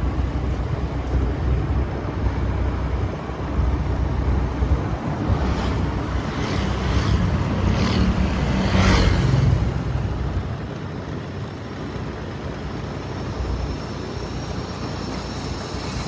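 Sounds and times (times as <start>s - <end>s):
wind on microphone: 0.0s - 11.2s
motorbike engine hum: 0.0s - 16.0s
road noise: 0.0s - 16.0s.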